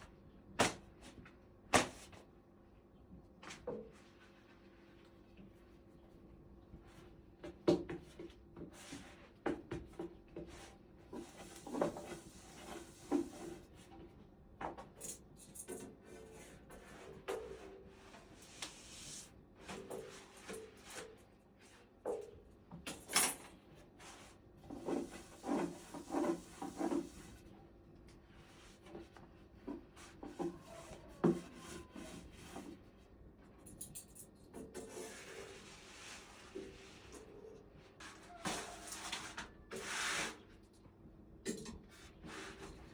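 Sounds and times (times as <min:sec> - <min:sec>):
soft rubbing and scraping: 0:23.9 - 0:27.6, 0:34.8 - 0:40.6.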